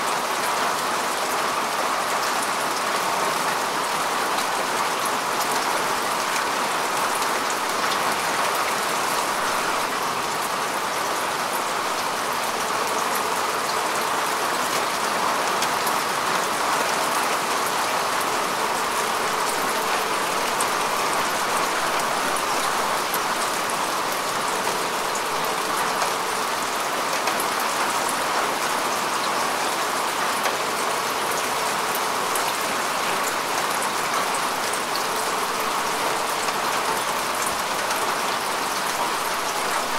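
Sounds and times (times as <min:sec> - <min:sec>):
rain falling on grass: 0:00.0 - 0:39.9.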